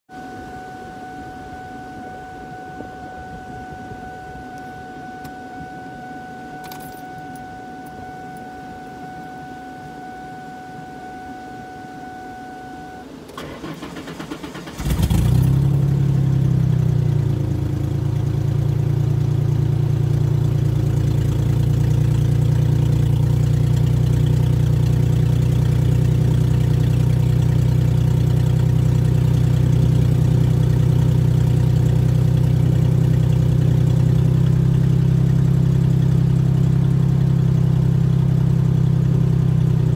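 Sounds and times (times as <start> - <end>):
car engine idling: 0.2 - 39.9
car starter cranking: 13.2 - 15.8.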